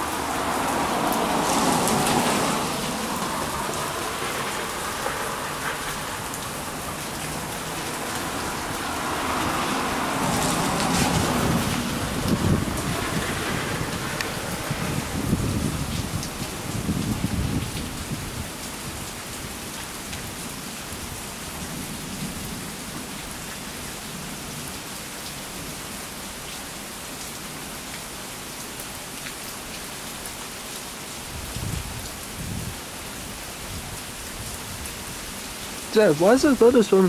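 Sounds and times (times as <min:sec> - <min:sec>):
steady rain: 0:00.0 - 0:37.0
thunder rumbling: 0:01.1 - 0:17.8.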